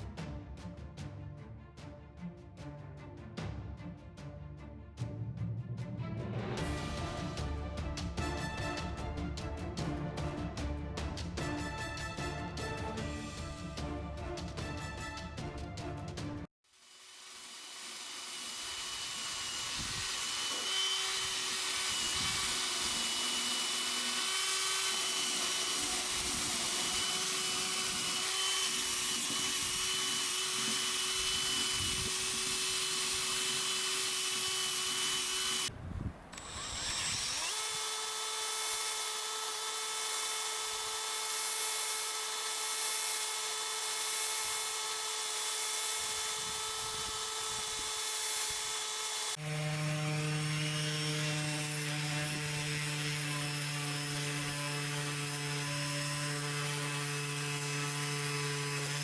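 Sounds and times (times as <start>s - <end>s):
power tool motor whine: 16.8s - 35.7s, 36.3s - 59.0s.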